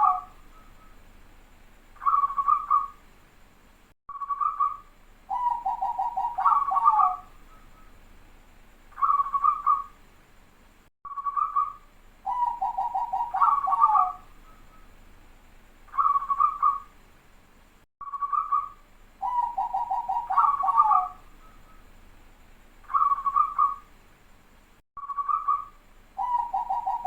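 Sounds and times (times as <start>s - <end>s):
dove cooing: 0.0s - 0.4s, 5.3s - 7.3s, 9.0s - 9.9s, 12.3s - 14.3s, 16.0s - 16.9s, 19.2s - 21.2s, 22.9s - 23.8s, 26.2s - 27.0s.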